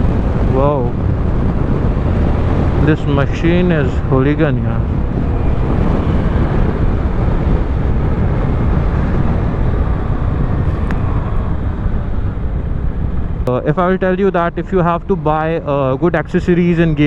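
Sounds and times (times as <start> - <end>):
motorcycle engine: 0.0 - 14.3
road noise: 0.0 - 17.0
wind rushing over microphone: 0.0 - 17.0.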